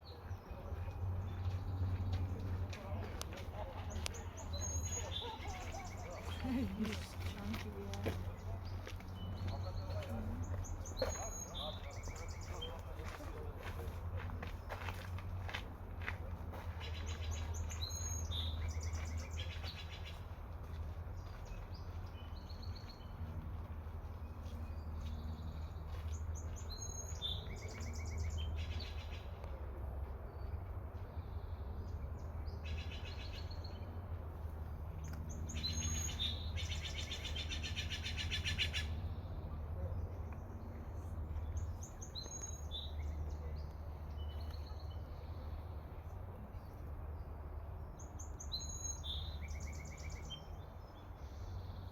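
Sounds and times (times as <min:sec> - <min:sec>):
birds calling: 0:00.2 - 0:13.1.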